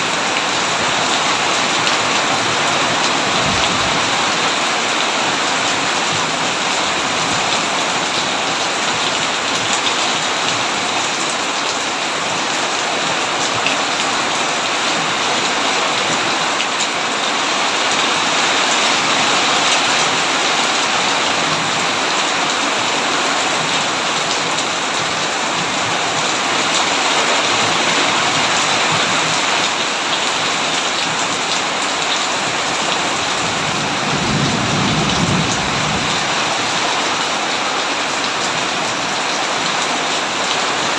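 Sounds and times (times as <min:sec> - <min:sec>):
heavy rain on a tin roof: 0:00.0 - 0:40.9
low rumble of thunder: 0:03.2 - 0:04.3, 0:33.5 - 0:36.5.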